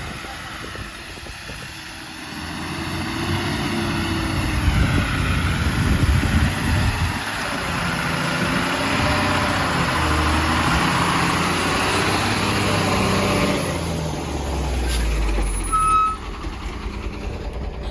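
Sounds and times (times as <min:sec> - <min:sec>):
heavy diesel engine running: 0:00.0 - 0:17.9
short high beep: 0:15.5 - 0:16.3.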